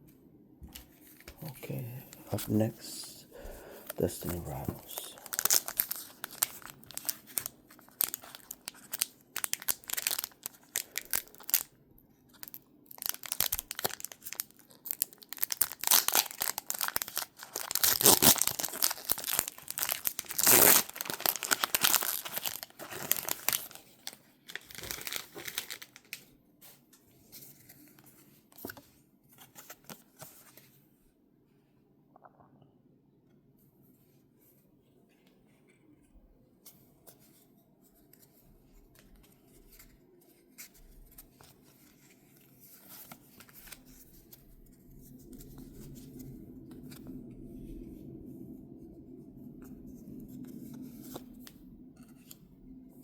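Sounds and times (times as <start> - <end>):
foil wrapper crinkling and tearing: 3.9 - 11.7, 12.3 - 26.2.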